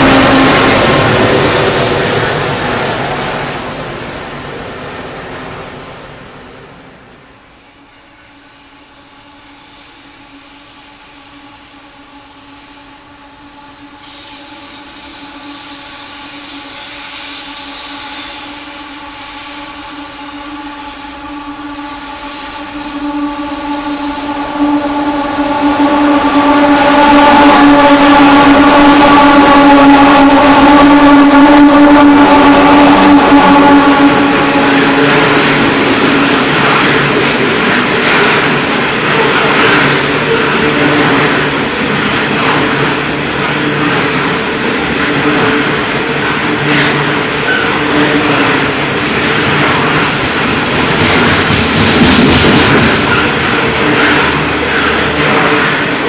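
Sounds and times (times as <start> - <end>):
diesel locomotive engine drone: 0.0 - 56.0
wheels hissing on rails: 0.0 - 56.0.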